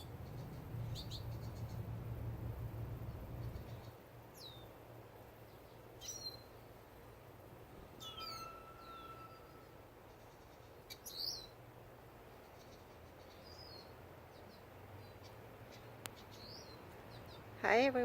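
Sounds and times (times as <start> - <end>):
finches chirping: 0.0 - 2.1, 3.0 - 4.7, 5.5 - 6.6, 8.0 - 11.6, 12.4 - 18.0
steady low hum: 0.0 - 18.0.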